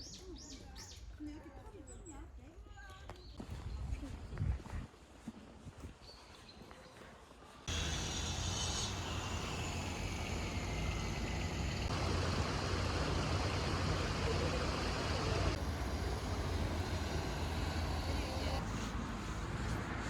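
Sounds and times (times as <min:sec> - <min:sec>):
even hiss: 0:07.7 - 0:18.6.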